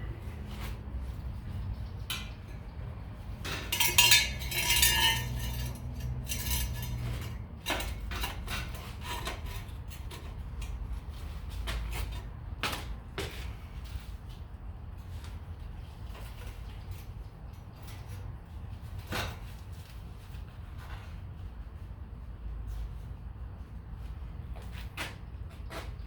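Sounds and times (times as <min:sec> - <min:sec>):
steady low hum: 0:00.0 - 0:11.5
scrap metal clinking and clattering: 0:02.1 - 0:10.8.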